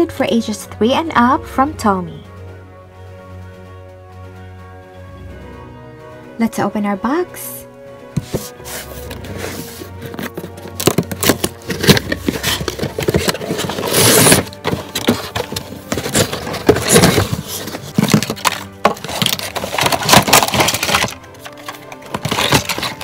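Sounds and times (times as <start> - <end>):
cardboard box scraping: 8.2 - 23.0
packaging rustling: 8.2 - 23.0
packaging clicks: 9.8 - 23.0.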